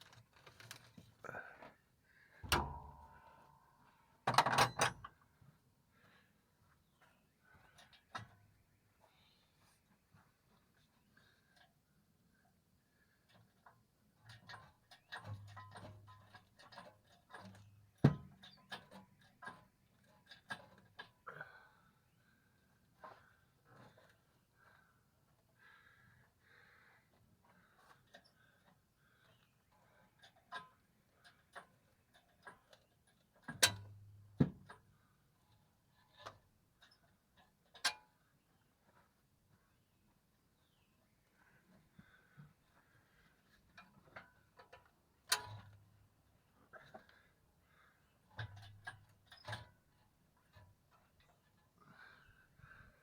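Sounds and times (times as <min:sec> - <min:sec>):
metallic clicks and knocks of tools: 0:04.3 - 0:05.2, 0:43.8 - 0:45.8, 0:48.4 - 0:49.8.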